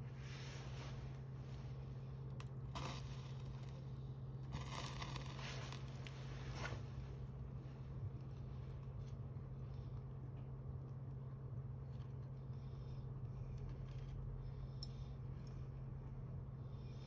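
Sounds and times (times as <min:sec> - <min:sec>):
wood fire crackling: 0:00.0 - 0:11.4
steady low hum: 0:00.0 - 0:17.0.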